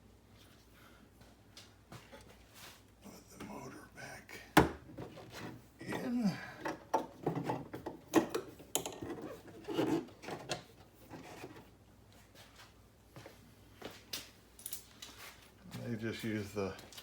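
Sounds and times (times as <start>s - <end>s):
metal parts clicking and knocking: 6.6s - 10.7s.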